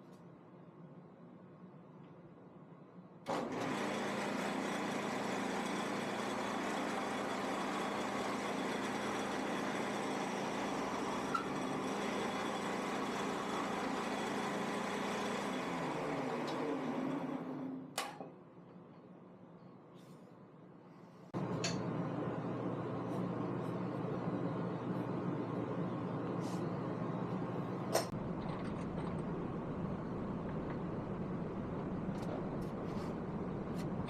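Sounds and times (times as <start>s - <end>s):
woodworking machine motor hum: 3.3s - 18.0s.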